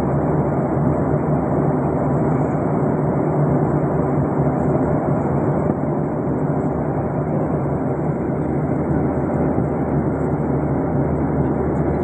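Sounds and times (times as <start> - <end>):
aircraft cabin engine roar: 0.0 - 12.0.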